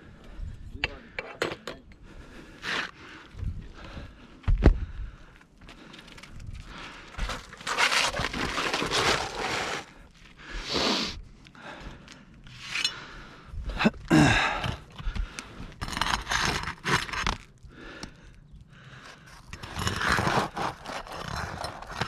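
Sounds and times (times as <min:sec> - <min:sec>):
roof shingles scraping and tearing: 0:05.9 - 0:10.1, 0:15.8 - 0:17.5, 0:19.0 - 0:22.0.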